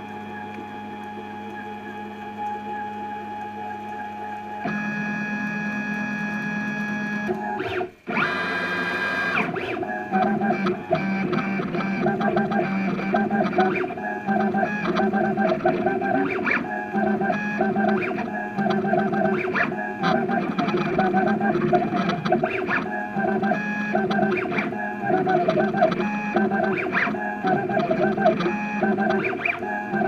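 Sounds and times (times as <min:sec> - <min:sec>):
stepper motors whining: 0:07.2 - 0:30.0.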